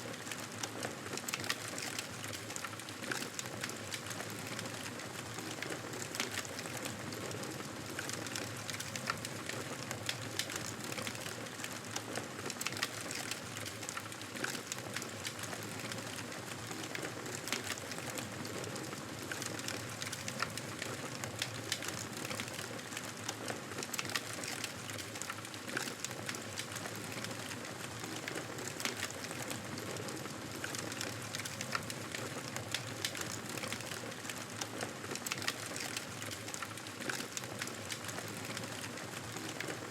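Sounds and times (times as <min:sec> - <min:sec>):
campfire pops and crackles: 0:30.6 - 0:39.8.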